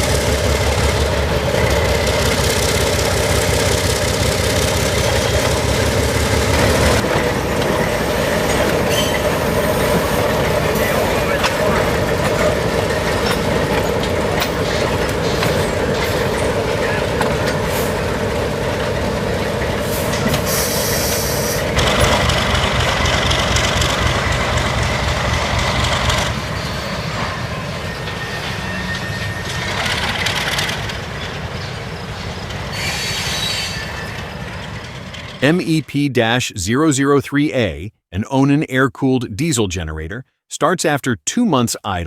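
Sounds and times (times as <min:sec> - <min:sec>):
train wheels rolling and screeching: 0:00.0 - 0:35.4
diesel locomotive engine: 0:00.0 - 0:38.0
high wheel squeal: 0:08.2 - 0:18.1, 0:19.7 - 0:23.4, 0:25.6 - 0:35.4.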